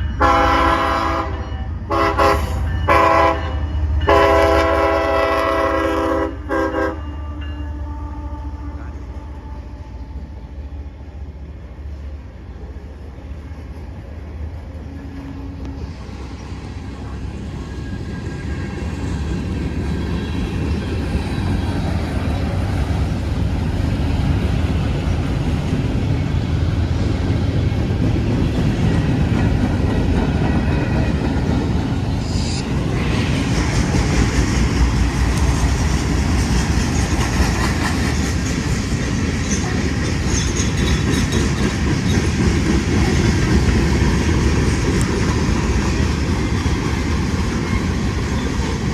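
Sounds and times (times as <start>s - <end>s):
freight train rumbling past: 0.0s - 48.9s
train wheels clicking over rail joints: 32.8s - 48.9s.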